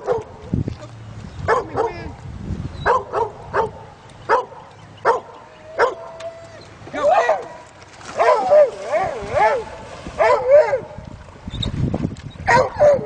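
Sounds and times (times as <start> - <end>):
dogs barking: 0.0 - 0.3, 1.5 - 2.0, 2.8 - 6.3, 7.0 - 11.0, 12.5 - 13.0.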